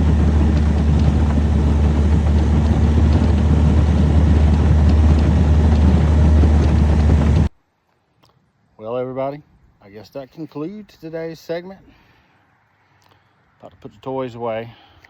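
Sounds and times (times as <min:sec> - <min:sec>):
boat motor droning: 0:00.0 - 0:07.5
water rushing: 0:00.0 - 0:07.5
wind: 0:00.0 - 0:15.0.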